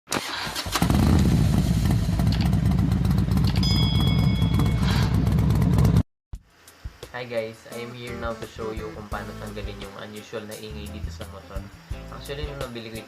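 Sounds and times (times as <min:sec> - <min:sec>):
scooter engine running rough: 0:00.6 - 0:06.0
high steady tone: 0:03.6 - 0:05.4.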